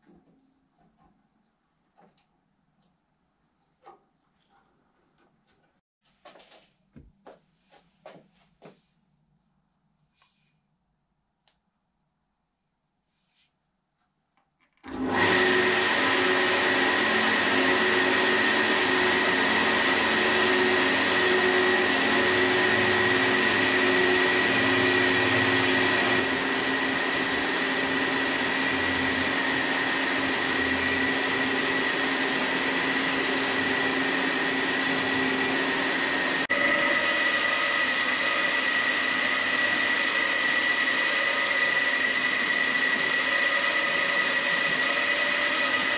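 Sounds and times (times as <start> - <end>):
hollowing tool cutting wood: 14.8 - 45.9
wood lathe motor whine: 14.8 - 45.9.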